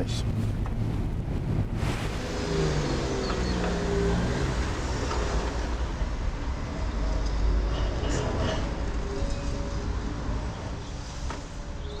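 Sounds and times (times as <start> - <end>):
vehicle engine rumbling past: 1.2 - 9.1.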